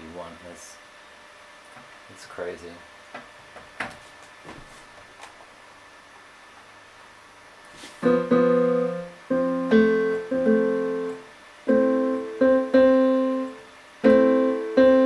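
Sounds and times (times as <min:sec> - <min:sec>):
piano chords: 0:08.0 - 0:15.0.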